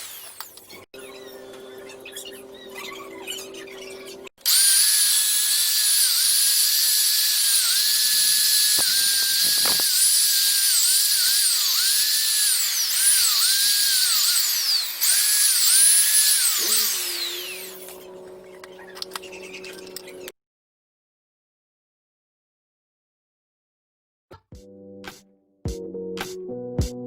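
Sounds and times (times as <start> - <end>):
power polisher whining on metal: 3.3 - 20.3.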